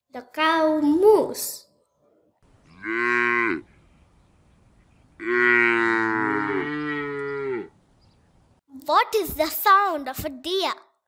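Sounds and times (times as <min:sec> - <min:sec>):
cow mooing: 0:02.6 - 0:03.7, 0:05.2 - 0:07.8.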